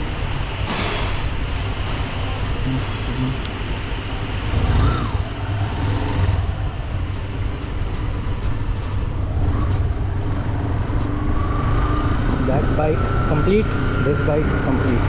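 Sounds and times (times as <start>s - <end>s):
motorcycle engine running: 4.4s - 15.0s.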